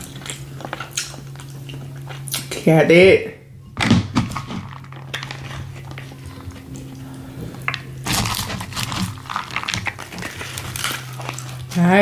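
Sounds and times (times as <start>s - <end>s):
taco shell crunching when chewed: 0.0s - 2.6s, 4.2s - 12.0s
steady low hum: 0.0s - 12.0s.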